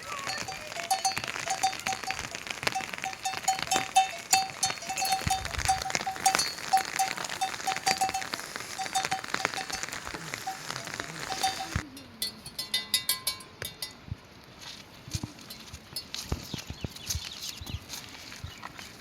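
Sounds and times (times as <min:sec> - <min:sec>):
rain falling: 0:00.0 - 0:11.8.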